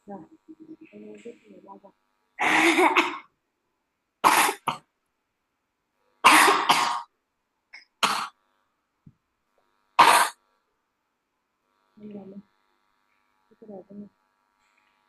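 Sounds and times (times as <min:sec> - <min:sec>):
person coughing: 0:02.4 - 0:03.3, 0:04.3 - 0:04.8, 0:06.3 - 0:07.1.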